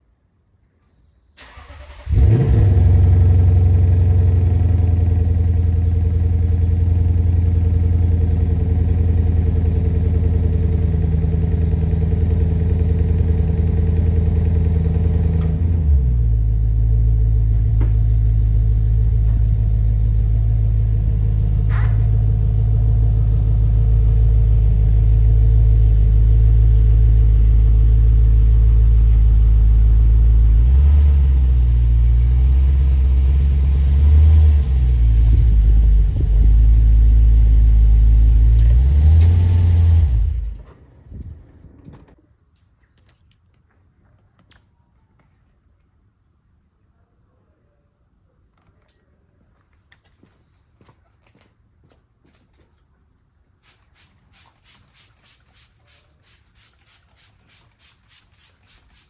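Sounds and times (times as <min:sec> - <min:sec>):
car engine starting and idling: 0:01.4 - 0:42.1.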